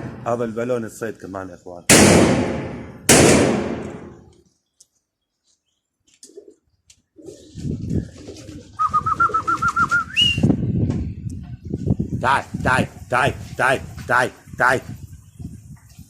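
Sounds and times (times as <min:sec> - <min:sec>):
pigeons cooing: 0:06.2 - 0:10.3.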